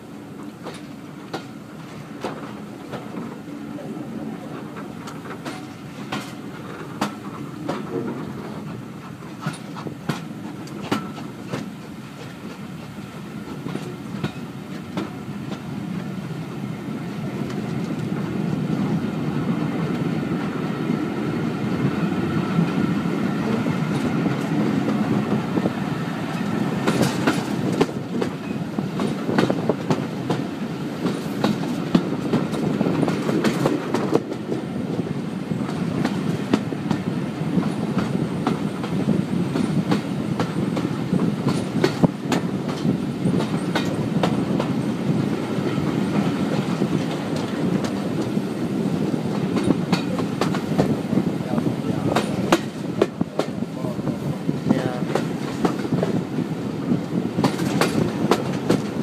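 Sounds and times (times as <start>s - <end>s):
train rumbling on track: 0.0s - 59.0s
wheels clicking over rail joints: 4.4s - 15.7s, 26.3s - 34.7s, 35.6s - 53.6s.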